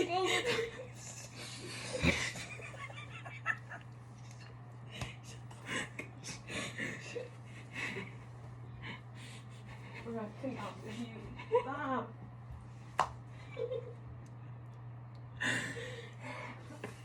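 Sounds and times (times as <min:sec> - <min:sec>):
breathy laughter: 0:01.4 - 0:03.8, 0:05.6 - 0:08.2.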